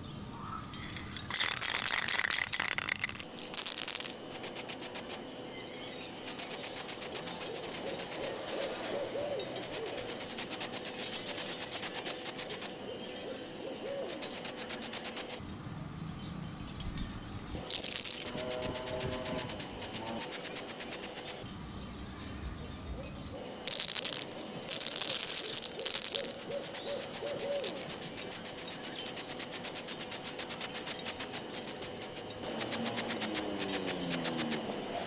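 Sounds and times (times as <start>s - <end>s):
spray can mixing ball rattling: 0.7s - 5.2s, 9.6s - 12.7s, 14.1s - 15.4s, 17.6s - 21.4s, 23.5s - 34.6s.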